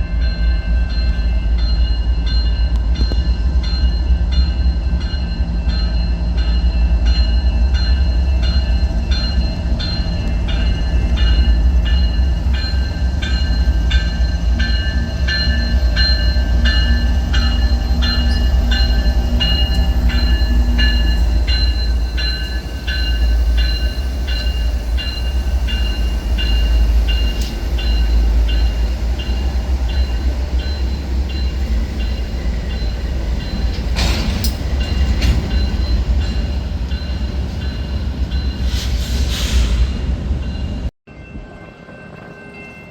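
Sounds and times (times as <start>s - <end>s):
crossing bell ringing: 0.0s - 38.8s, 40.4s - 42.9s
train rumbling past: 0.0s - 42.9s.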